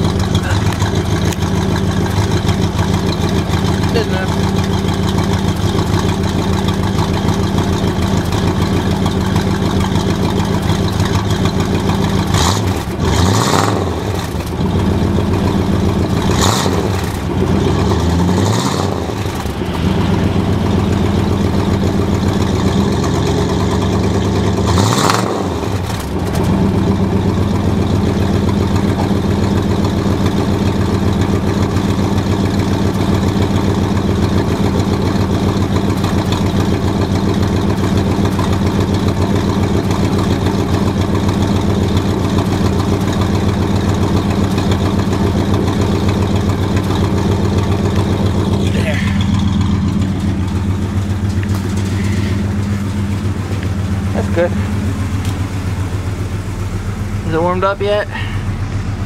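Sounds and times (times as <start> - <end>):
engine revving: 0.0 - 59.0
truck engine idling: 0.0 - 59.0.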